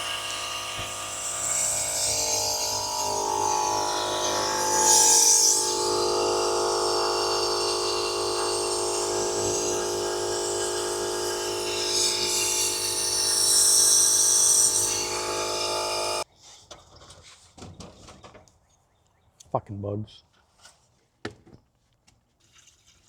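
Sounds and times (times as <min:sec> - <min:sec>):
air tool whining and hissing: 0:00.0 - 0:16.2.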